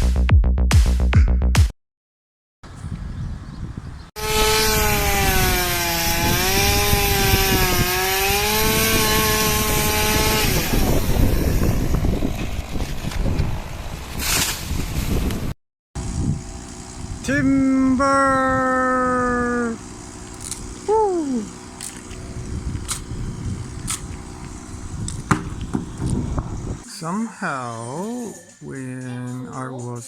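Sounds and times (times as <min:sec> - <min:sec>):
electric chainsaw whine cutting: 0:04.2 - 0:14.2, 0:16.0 - 0:26.8
rough noise: 0:19.5 - 0:27.1.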